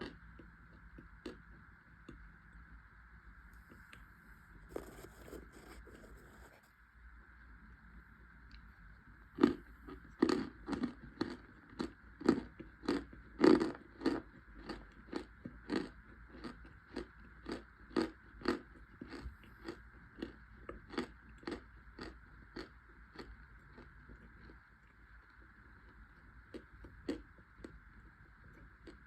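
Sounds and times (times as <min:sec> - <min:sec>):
person chewing crunchy snack: 0:04.7 - 0:06.6, 0:09.4 - 0:25.0.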